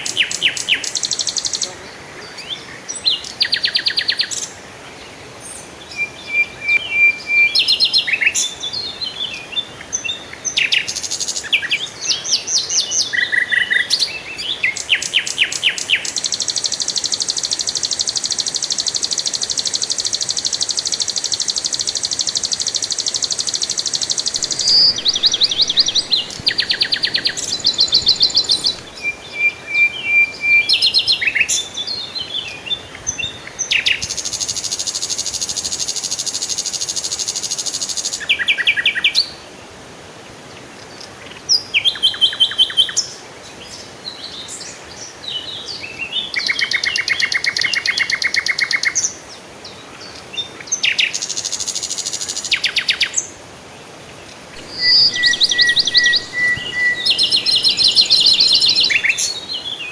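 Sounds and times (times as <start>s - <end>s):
songbirds trilling and chirping: 23.3s - 34.6s, 54.3s - 59.9s.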